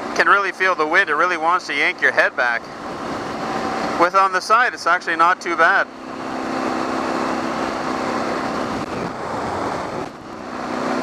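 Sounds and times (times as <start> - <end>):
motorcycle engine running: 2.6 - 11.0
wind rushing over microphone: 6.2 - 11.0.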